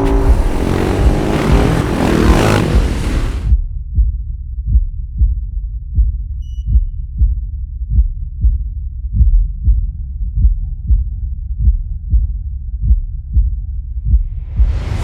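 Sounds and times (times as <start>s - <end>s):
loud rushing noise: 0.0s - 3.6s.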